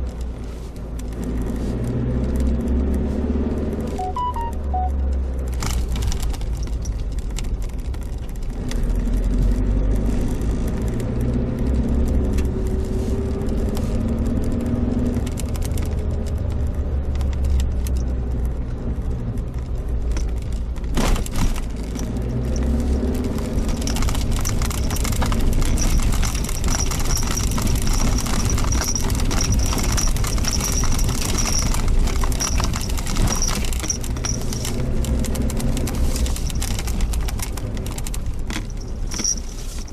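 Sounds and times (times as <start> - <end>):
car engine running: 0.0 - 39.9
road noise: 0.0 - 39.9
light rattle: 19.6 - 39.9.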